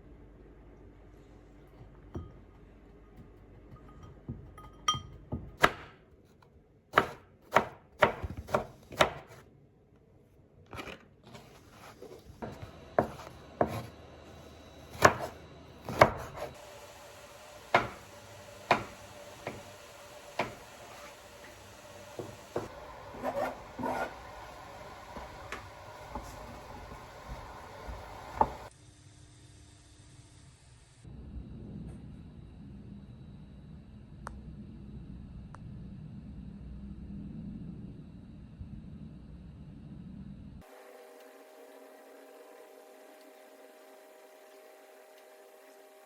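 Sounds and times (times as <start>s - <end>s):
knife chopping on cutting board: 5.3s - 6.0s, 6.9s - 9.4s, 10.8s - 13.9s, 14.9s - 16.6s, 17.6s - 21.2s, 22.1s - 28.7s.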